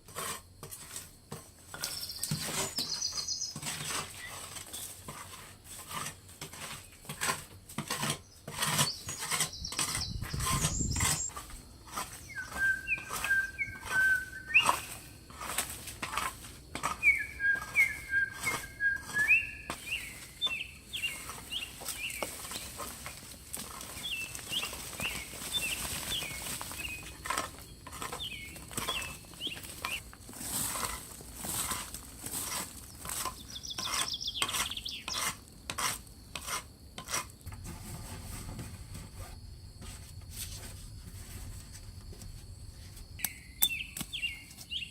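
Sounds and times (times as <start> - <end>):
rustling: 1.7 - 35.3, 37.5 - 43.2
bird chirping: 1.8 - 4.9, 8.2 - 11.4, 12.1 - 15.1, 16.9 - 23.2, 23.9 - 30.0, 32.9 - 35.3, 43.2 - 44.9.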